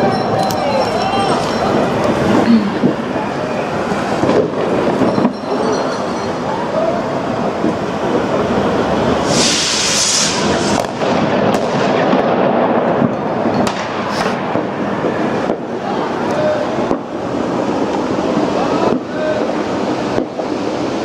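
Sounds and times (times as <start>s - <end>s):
fireworks bangs and crackle: 0.0s - 21.0s
sharp firework reports: 0.0s - 21.0s
firework hissing burst: 8.1s - 13.1s, 13.8s - 15.5s.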